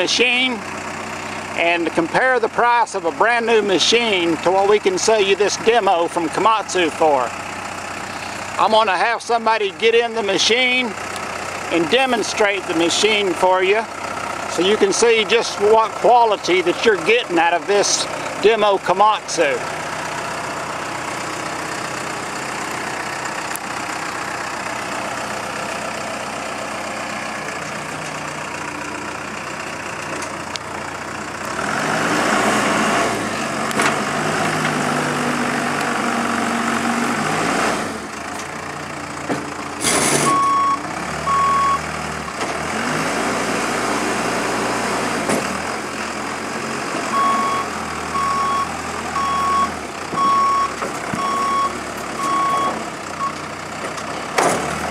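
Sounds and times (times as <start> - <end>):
diesel engine revving: 0.0 - 54.9
reversing alarm beeping: 40.2 - 41.9, 47.1 - 53.4.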